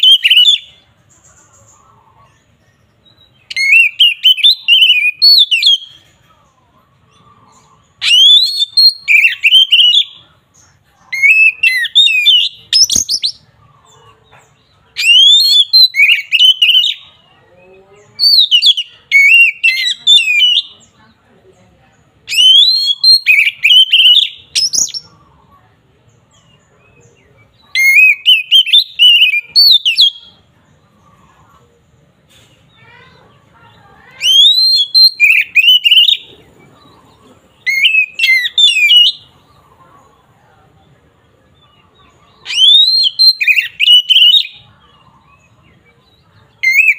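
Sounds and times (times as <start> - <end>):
songbird singing whistled phrases: 0.0 - 1.8, 2.4 - 6.1, 7.0 - 13.6, 14.9 - 17.3, 18.0 - 21.0, 22.2 - 25.3, 26.3 - 30.5, 34.0 - 39.6, 41.5 - 46.9.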